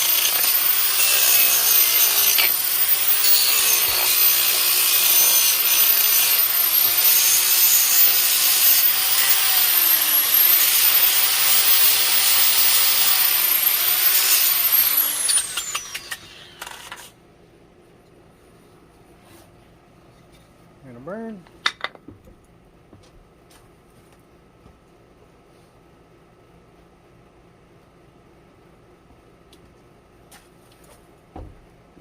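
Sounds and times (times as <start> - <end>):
electric power tool cutting wood: 0.0 - 17.1
clicks of tool winding down: 14.2 - 17.0.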